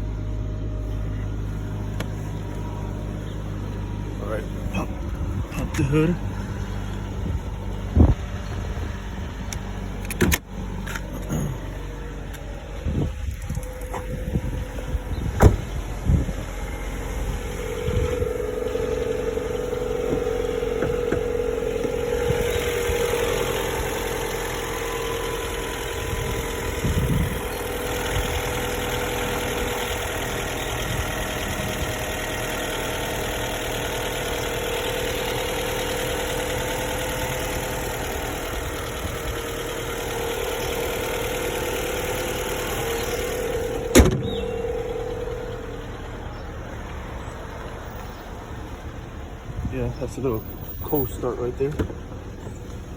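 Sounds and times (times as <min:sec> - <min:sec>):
car engine idling: 0:00.0 - 0:52.9
steady hum: 0:11.2 - 0:27.5, 0:42.0 - 0:46.9.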